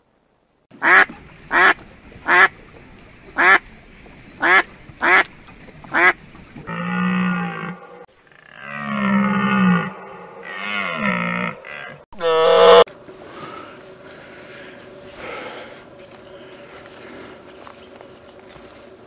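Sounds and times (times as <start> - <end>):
duck quacking: 0.8 - 2.5, 3.4 - 3.6, 4.4 - 5.3, 5.9 - 6.2.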